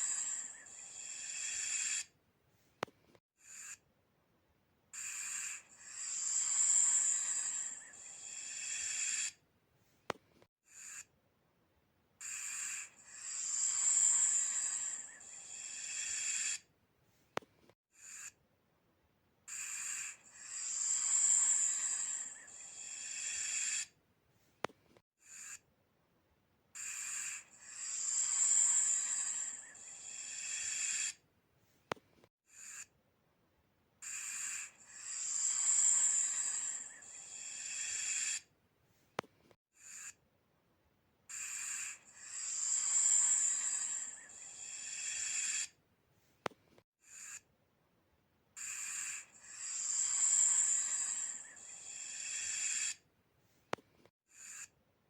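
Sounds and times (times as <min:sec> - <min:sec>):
snake hissing: 0:00.0 - 0:02.1, 0:05.0 - 0:09.4, 0:12.2 - 0:16.6, 0:19.5 - 0:23.9, 0:26.8 - 0:31.2, 0:34.0 - 0:38.5, 0:41.3 - 0:45.7, 0:48.6 - 0:53.0.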